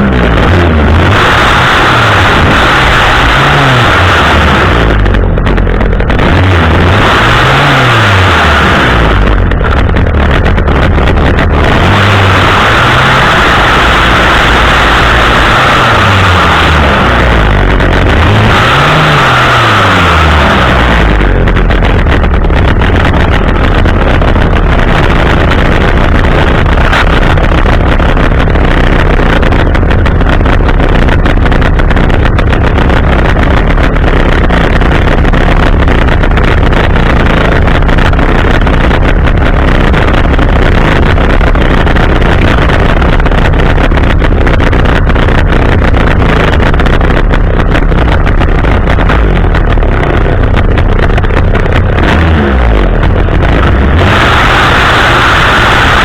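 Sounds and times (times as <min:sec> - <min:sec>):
chainsaw engine running: 0:00.0 - 0:56.0.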